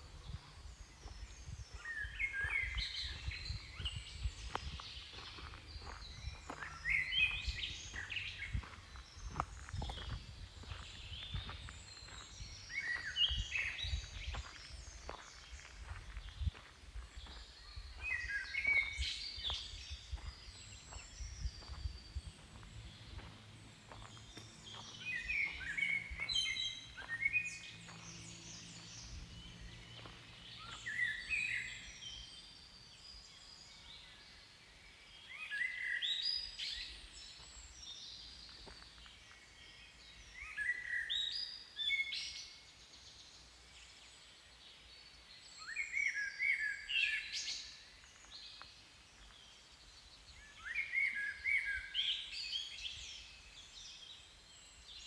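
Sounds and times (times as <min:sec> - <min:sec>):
songbird chirping: 0:00.0 - 0:55.0.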